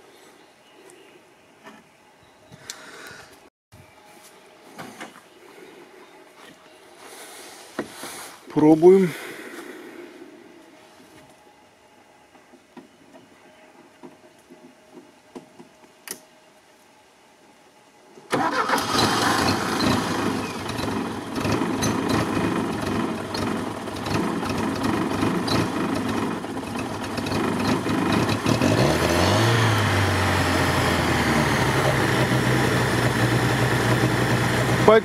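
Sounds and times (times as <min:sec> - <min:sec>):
engine starting and idling: 0:18.3 - 0:35.0.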